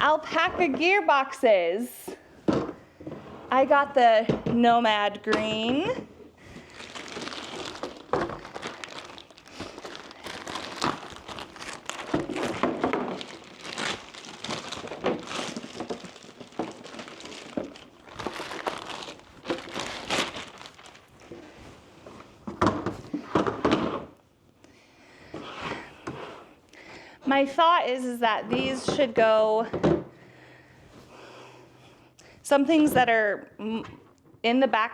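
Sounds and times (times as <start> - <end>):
crinkly packaging rustling: 2.5 - 24.2.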